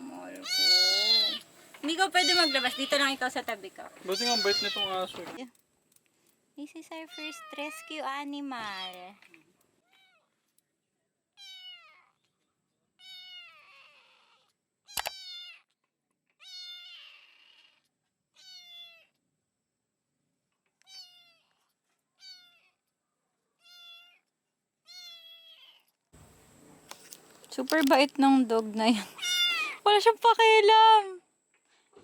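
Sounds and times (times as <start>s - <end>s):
cat meowing: 0.1s - 3.2s, 4.0s - 5.4s, 7.0s - 8.0s, 9.8s - 10.3s, 11.4s - 12.2s, 13.0s - 15.7s, 16.4s - 17.8s, 18.4s - 19.2s, 20.8s - 21.6s, 22.2s - 22.8s, 23.6s - 24.2s, 24.9s - 25.8s, 29.1s - 29.8s.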